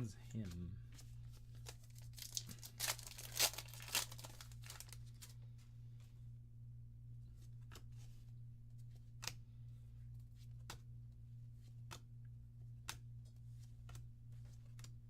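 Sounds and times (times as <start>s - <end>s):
steady low hum: 0.0s - 15.0s
cards flipped with clicks: 7.6s - 8.0s, 8.9s - 9.4s, 10.5s - 10.9s, 12.8s - 15.0s.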